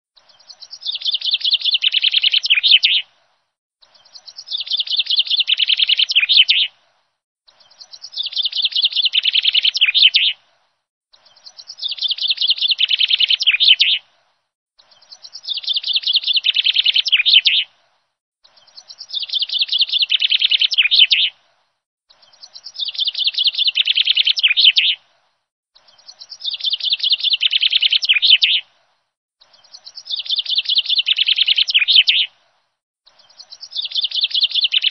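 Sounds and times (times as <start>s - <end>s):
songbird chirping: 0.2s - 34.9s.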